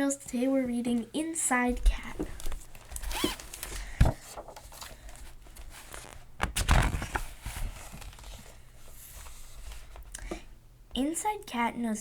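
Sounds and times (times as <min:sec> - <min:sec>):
faint room sound: 0:00.0 - 0:12.0
soft knocks handling a book: 0:01.8 - 0:08.5
book rustle: 0:01.9 - 0:10.1.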